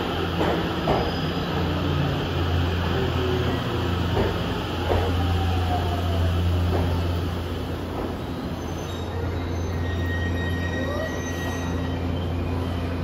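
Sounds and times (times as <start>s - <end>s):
train wheels clacking over rail joints: 0.3s - 1.8s, 3.5s - 5.2s, 6.6s - 7.1s.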